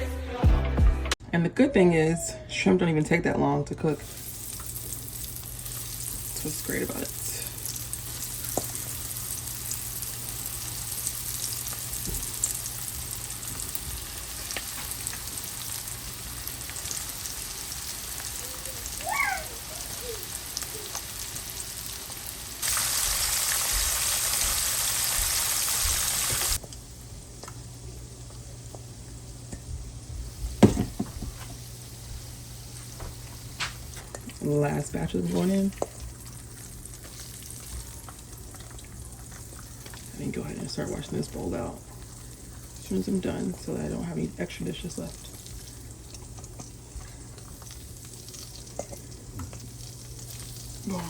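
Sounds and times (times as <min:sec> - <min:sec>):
shrimp sizzling in a pan: 0:04.0 - 0:26.6, 0:44.5 - 0:51.0.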